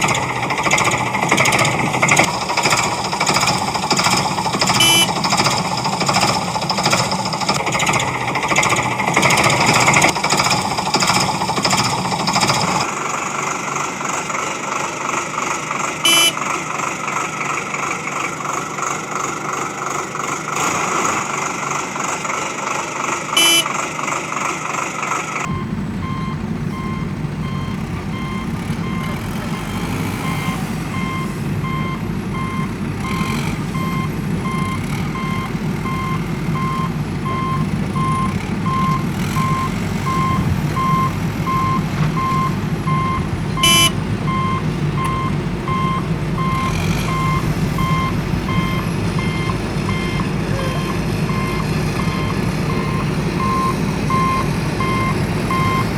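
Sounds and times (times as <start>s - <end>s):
machine motor buzzing: 0.0s - 12.9s, 25.5s - 42.7s, 46.0s - 49.3s
vehicle reversing alarm beeping: 0.0s - 12.9s, 16.0s - 16.6s, 23.4s - 23.8s, 25.4s - 55.9s
short high beep: 4.8s - 5.2s, 16.1s - 16.4s, 23.4s - 23.7s, 43.6s - 44.5s
low engine rumble: 25.4s - 55.9s.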